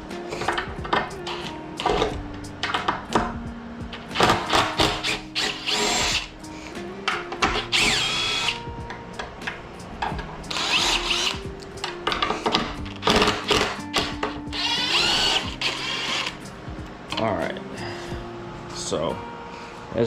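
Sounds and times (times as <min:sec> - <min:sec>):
clicks and handling noise: 0:00.3 - 0:06.2, 0:07.0 - 0:16.4
impact driver motor whining: 0:00.4 - 0:03.3, 0:04.0 - 0:06.4, 0:07.4 - 0:08.7, 0:10.5 - 0:11.4, 0:12.0 - 0:16.4.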